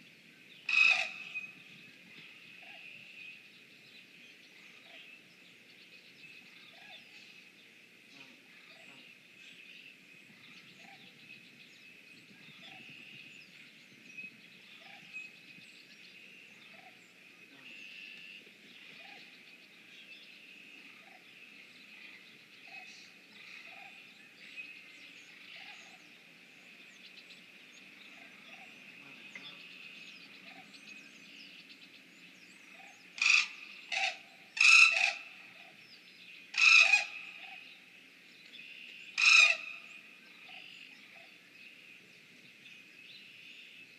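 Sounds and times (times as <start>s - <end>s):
harsh bird calls: 32.7s - 35.8s, 36.5s - 37.7s, 39.0s - 41.2s.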